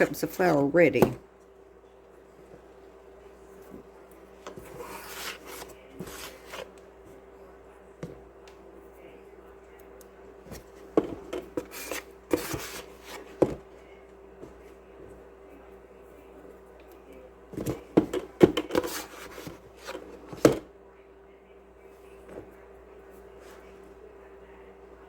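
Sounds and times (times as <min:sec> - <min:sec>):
faint steady hum: 0:00.0 - 0:25.0
scooping and scraping flour: 0:03.6 - 0:07.2, 0:10.4 - 0:13.6, 0:18.7 - 0:20.4.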